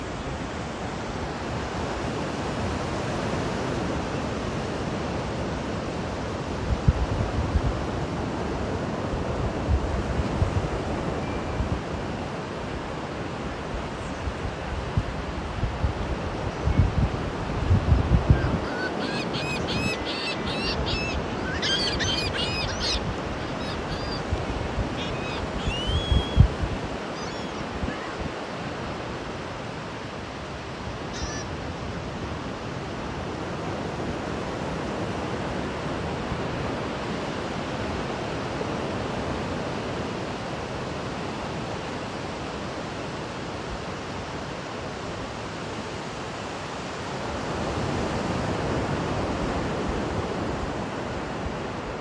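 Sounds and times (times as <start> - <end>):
ocean surf breaking: 7.7 - 39.0
wind buffeting microphone: 13.6 - 28.4
birds calling: 16.5 - 28.8, 31.0 - 31.6.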